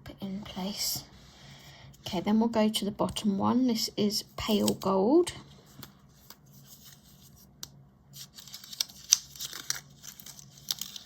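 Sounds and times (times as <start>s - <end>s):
wrapping snapping: 7.6s - 11.0s
wrapping crinkling and tearing: 8.1s - 11.0s.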